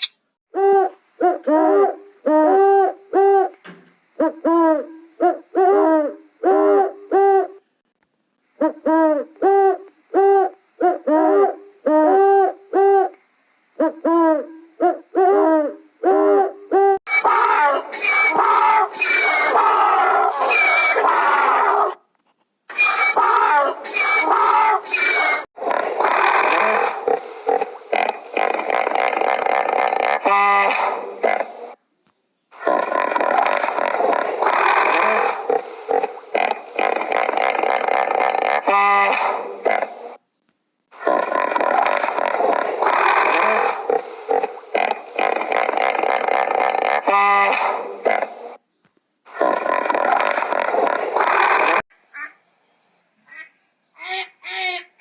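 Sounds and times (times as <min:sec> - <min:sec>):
animal hooting calls: 0:13.8 - 0:22.0, 0:22.7 - 0:31.5, 0:32.6 - 0:40.0, 0:41.0 - 0:48.3
rough mixed animal noise: 0:17.1 - 0:22.1, 0:22.7 - 0:31.8, 0:32.5 - 0:40.2, 0:40.9 - 0:48.6, 0:49.3 - 0:51.8.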